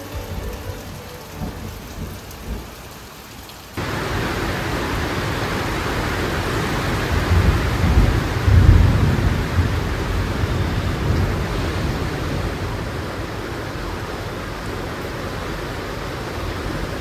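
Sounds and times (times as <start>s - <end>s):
heavy rain pouring: 0.0s - 17.0s
low rumble of thunder: 3.8s - 14.6s.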